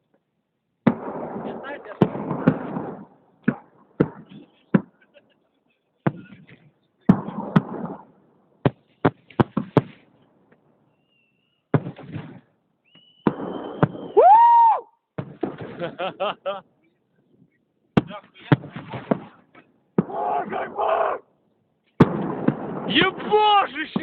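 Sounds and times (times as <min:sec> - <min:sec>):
fireworks bangs: 0:00.8 - 0:05.3, 0:06.1 - 0:10.1, 0:11.7 - 0:16.2, 0:18.0 - 0:21.2, 0:22.0 - 0:24.0
thin high whistle: 0:10.9 - 0:11.6, 0:12.8 - 0:14.7.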